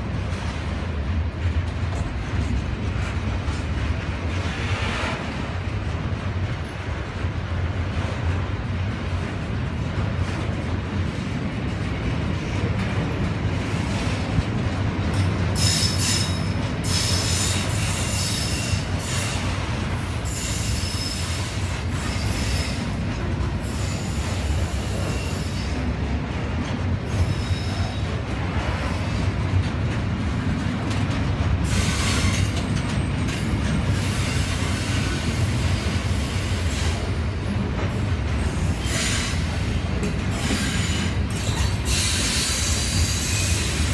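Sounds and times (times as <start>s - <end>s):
freight train wheels rumbling: 0.0s - 43.9s
high wheel squeals: 20.3s - 22.8s.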